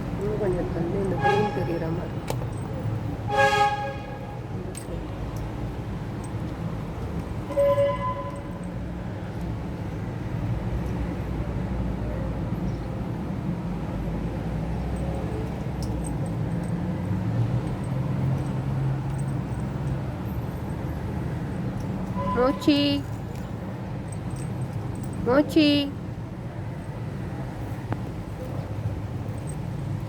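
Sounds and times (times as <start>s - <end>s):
vehicle traffic rumble: 0.0s - 30.0s
car horn toot: 1.1s - 1.9s, 3.3s - 4.5s, 7.5s - 8.6s, 22.2s - 23.0s.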